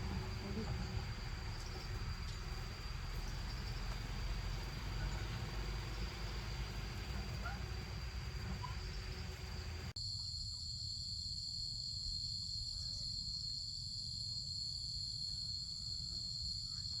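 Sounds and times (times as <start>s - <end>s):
low rumble: 0.0s - 10.0s
insects chirring: 0.0s - 10.6s.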